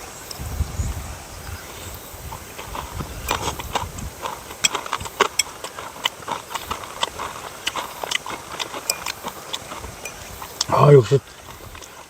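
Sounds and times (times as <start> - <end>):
eating clicks and taps: 2.6 - 10.7.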